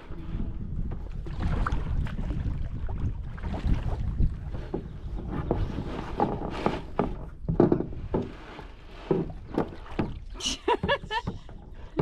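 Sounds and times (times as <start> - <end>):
knocks against canoe hull: 4.7 - 8.4, 9.0 - 10.2.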